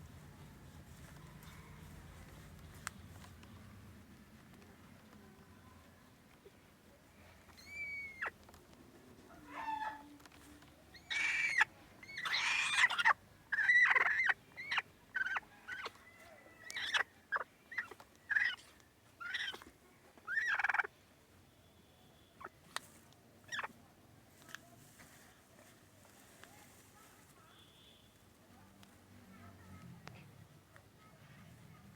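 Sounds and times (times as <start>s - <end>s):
hen giving harsh angry calls: 11.0s - 15.9s.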